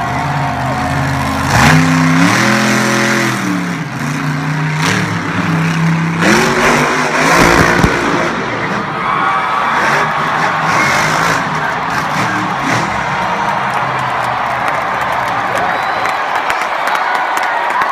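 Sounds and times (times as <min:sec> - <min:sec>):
truck engine revving hard: 0:00.0 - 0:13.8
sharp bangs: 0:06.4 - 0:08.8.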